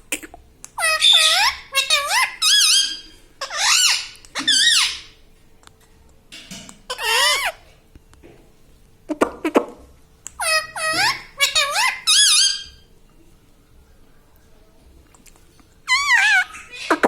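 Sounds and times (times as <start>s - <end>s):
parakeet squawking calls: 0.8s - 5.2s, 6.9s - 7.6s, 10.4s - 12.8s, 15.9s - 17.0s.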